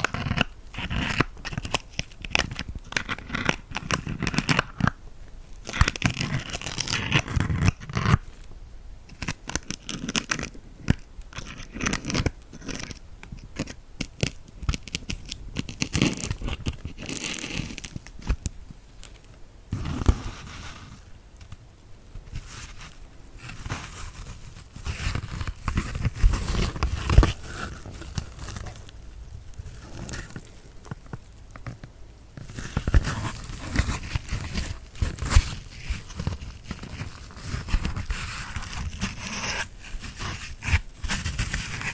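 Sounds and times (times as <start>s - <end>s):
sponge crunching and scratching: 22.4s - 28.9s.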